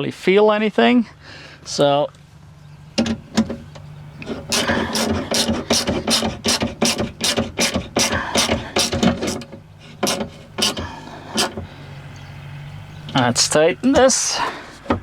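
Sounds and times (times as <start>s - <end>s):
ratchet clicking: 4.2s - 11.6s.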